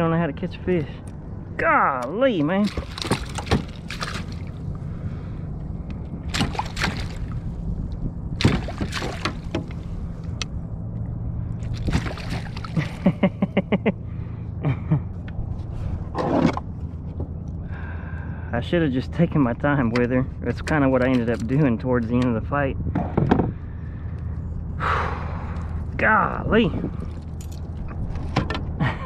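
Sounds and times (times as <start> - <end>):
low rumble: 0.0 - 29.0
water sloshing and splashing: 2.3 - 13.3, 26.8 - 28.4
knocks against a kayak: 8.4 - 9.8.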